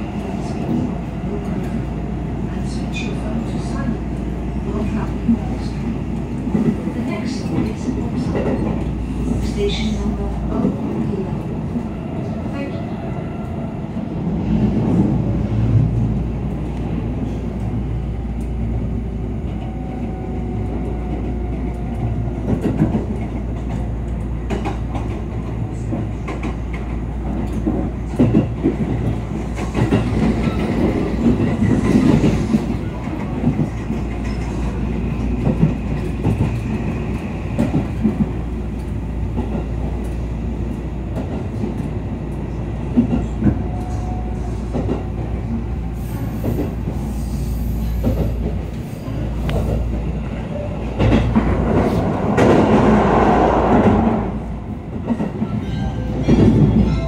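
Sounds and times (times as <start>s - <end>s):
train running rumble: 0.0s - 57.0s.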